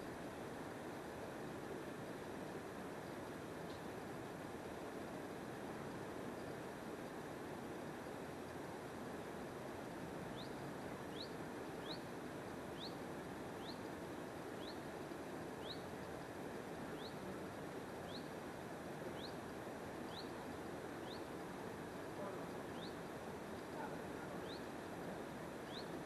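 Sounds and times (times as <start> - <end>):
small bird chirping: 10.3 - 12.0, 12.7 - 13.0, 13.6 - 13.9, 14.6 - 14.8, 15.6 - 15.9, 16.9 - 17.2, 18.0 - 18.3, 19.2 - 19.4, 20.1 - 20.4, 21.0 - 21.3, 22.3 - 24.7, 25.6 - 26.0.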